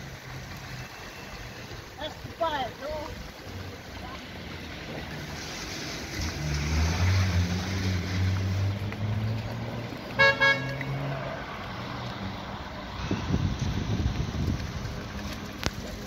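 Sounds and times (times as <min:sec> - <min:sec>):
vehicle engine passing by: 0:04.1 - 0:16.0
car horn beeps: 0:10.2 - 0:10.8.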